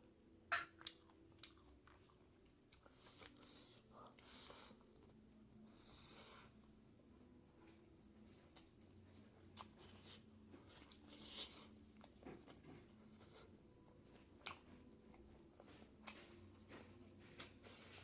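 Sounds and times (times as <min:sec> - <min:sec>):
person chewing: 0:00.8 - 0:05.1, 0:09.6 - 0:12.6, 0:14.4 - 0:14.7.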